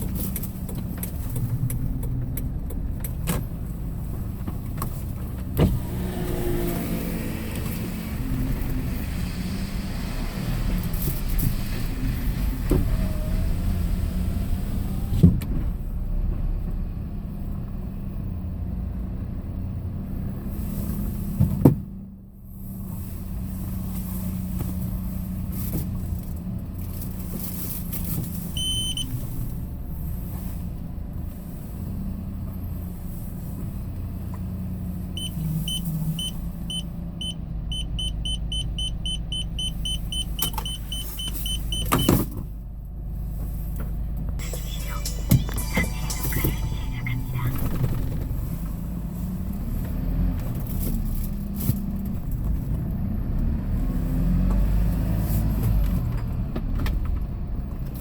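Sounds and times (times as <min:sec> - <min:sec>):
turn signal ticking: 0:00.0 - 0:05.6, 0:35.2 - 0:42.3
engine and road hum: 0:00.0 - 0:58.0.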